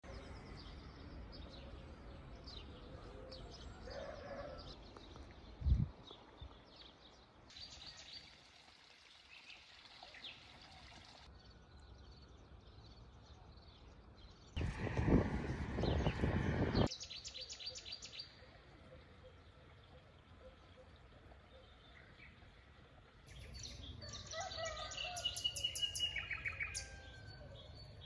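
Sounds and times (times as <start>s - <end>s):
small birds chirping: 9.2s - 28.0s
low background rumble: 14.6s - 16.9s.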